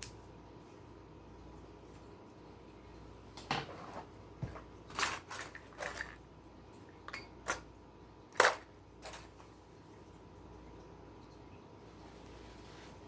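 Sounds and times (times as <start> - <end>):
scrapes and clicks of handling tools: 3.9 - 6.2.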